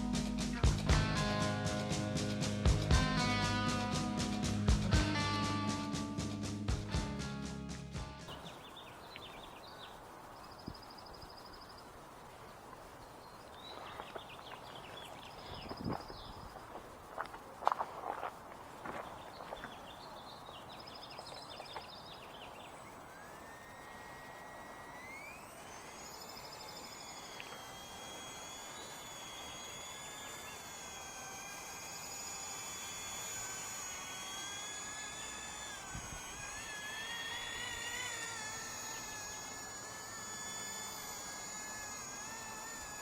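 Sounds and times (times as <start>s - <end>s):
electric motor whine: 0.0s - 6.6s, 8.3s - 43.0s.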